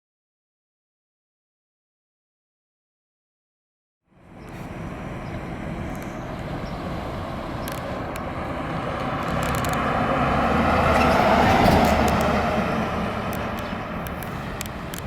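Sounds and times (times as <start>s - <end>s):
fire engine approaching: 4.1s - 15.0s.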